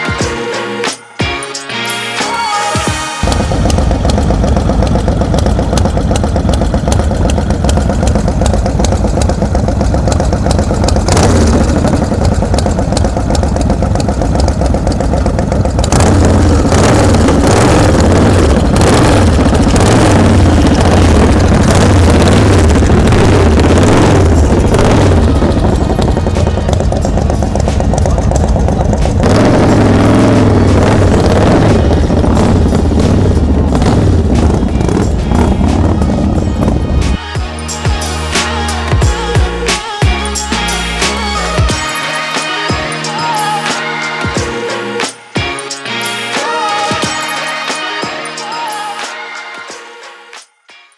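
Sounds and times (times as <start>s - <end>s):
car engine running unevenly: 3.2s - 41.8s.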